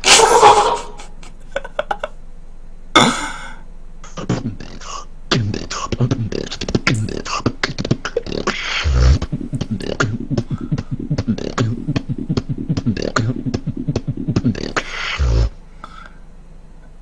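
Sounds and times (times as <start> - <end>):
person beatboxing: 3.0 - 16.2.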